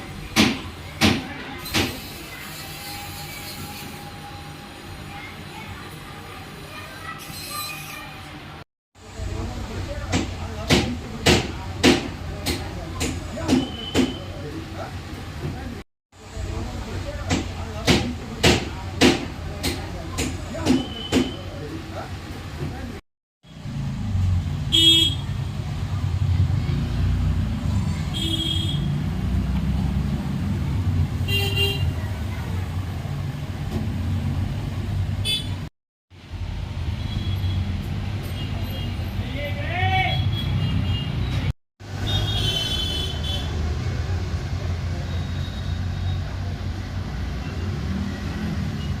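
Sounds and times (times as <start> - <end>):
traffic rumble: 8.3 - 49.0
vehicle horn honks: 24.7 - 25.4, 28.1 - 28.9, 31.3 - 31.9.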